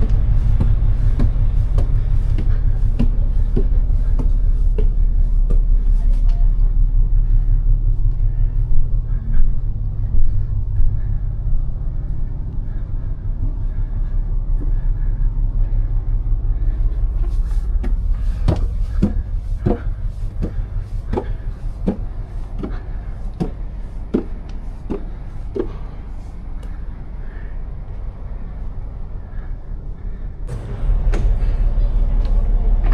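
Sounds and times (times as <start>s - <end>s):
boat engine rumble: 0.0s - 32.9s
hollow knocks: 17.8s - 25.8s.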